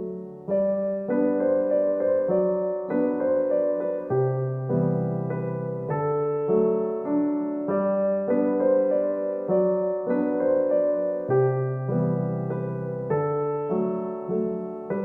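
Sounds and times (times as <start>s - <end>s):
slow gentle piano music: 0.0s - 15.0s.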